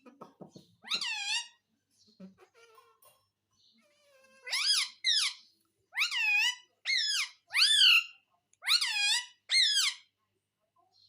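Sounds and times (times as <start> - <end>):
parrot calling: 0.8 - 1.6, 4.4 - 10.1.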